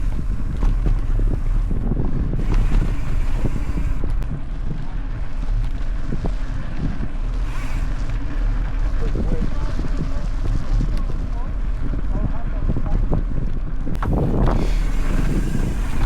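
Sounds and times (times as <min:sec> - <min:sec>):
bike clicks and rattles: 0:00.0 - 0:16.0
wind buffeting microphone: 0:00.0 - 0:16.0.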